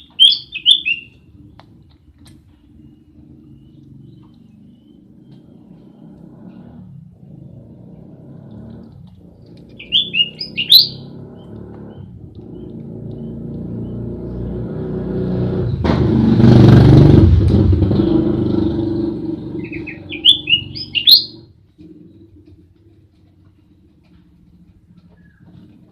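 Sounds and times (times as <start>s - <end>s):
bird chirping: 0.0s - 14.8s, 17.8s - 22.6s, 24.9s - 25.9s
motor vehicle passing: 0.0s - 25.9s.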